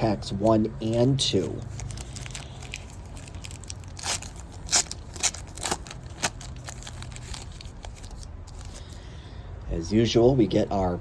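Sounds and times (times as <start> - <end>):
plastic wrapper crinkling: 0.4 - 9.0.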